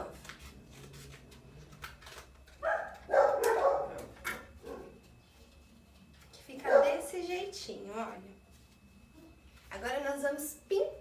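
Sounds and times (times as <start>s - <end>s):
dog barking: 2.6s - 5.0s, 6.6s - 7.0s.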